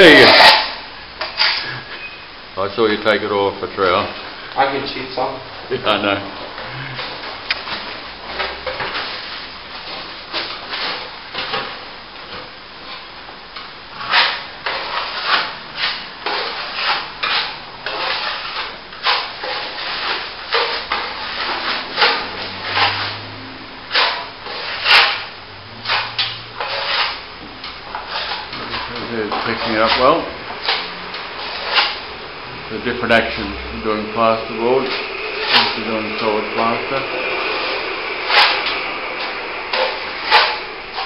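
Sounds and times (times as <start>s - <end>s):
trowel scraping wet plaster: 0.1s - 1.7s, 14.0s - 23.2s, 23.9s - 27.2s, 27.8s - 32.0s, 34.8s - 36.4s, 37.5s - 41.0s.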